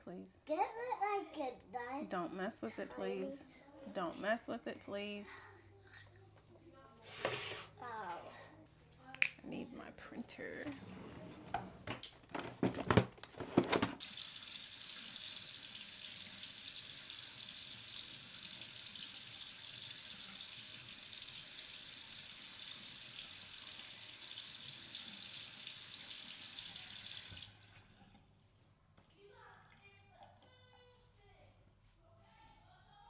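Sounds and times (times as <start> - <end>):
water running into sink: 14.0 - 28.0.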